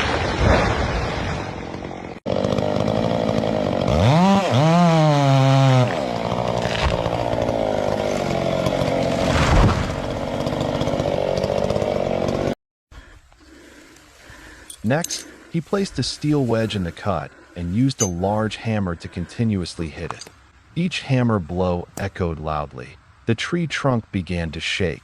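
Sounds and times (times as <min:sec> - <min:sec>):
chainsaw cutting wood: 0:01.5 - 0:12.6.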